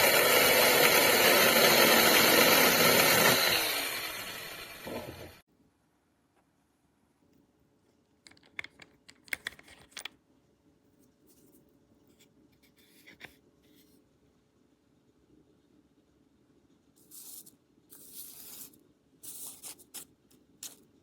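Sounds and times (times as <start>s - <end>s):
faint steady background noise: 5.5s - 21.0s.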